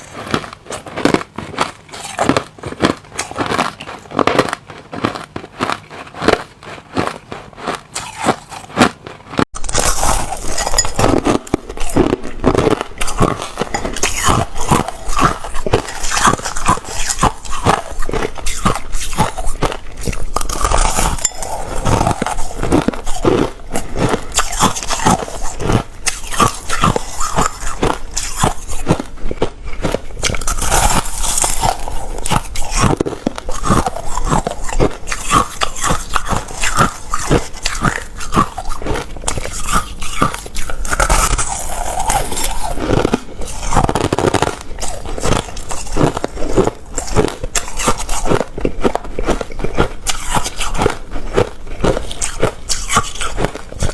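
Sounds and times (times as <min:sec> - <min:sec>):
person crunching ice: 0:00.0 - 0:53.9.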